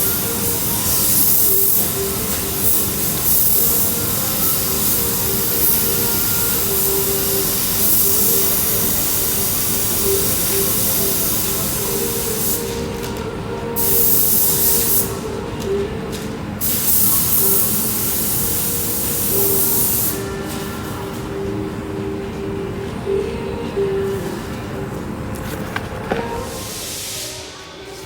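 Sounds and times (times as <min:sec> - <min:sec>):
loud air spray hiss: 0:00.0 - 0:13.0, 0:13.8 - 0:15.2, 0:16.6 - 0:20.6, 0:26.4 - 0:27.9
steady mechanical hum: 0:00.0 - 0:28.0.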